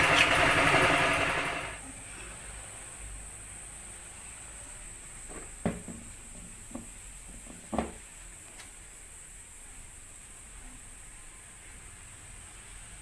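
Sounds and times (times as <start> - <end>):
faint steady hiss: 1.8 - 13.0
knocks and clatters: 5.3 - 8.0.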